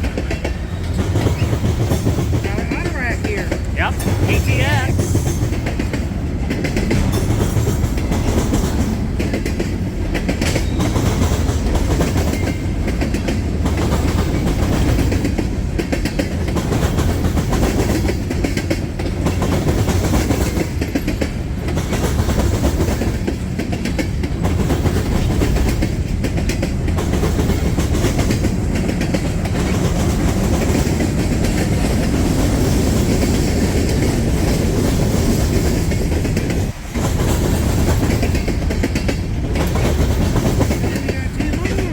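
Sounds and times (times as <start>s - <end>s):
wheels clicking over rail joints: 0.0s - 4.3s, 4.9s - 41.9s.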